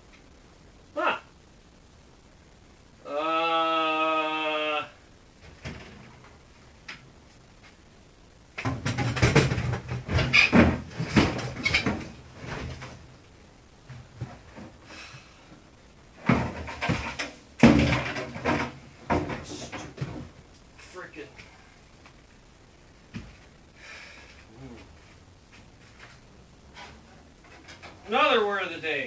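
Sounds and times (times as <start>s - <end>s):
clattering of refrigerator parts: 5.4s - 6.3s, 8.6s - 13.0s, 16.2s - 20.4s, 26.7s - 28.4s.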